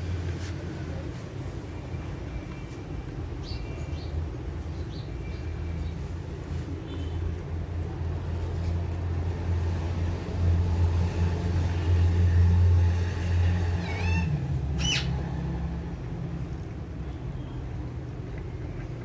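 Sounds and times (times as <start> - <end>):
parrot call: 13.8 - 15.2.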